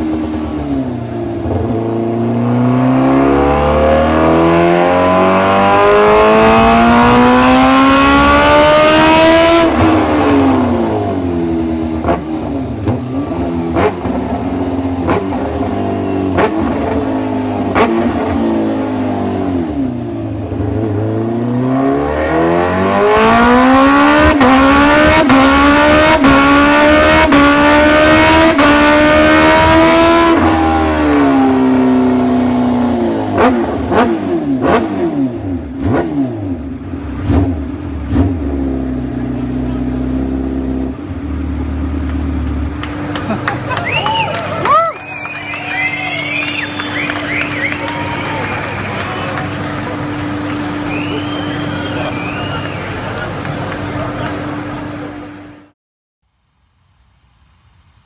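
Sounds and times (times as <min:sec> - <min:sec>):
motorcycle engine revving: 0:00.0 - 0:43.8.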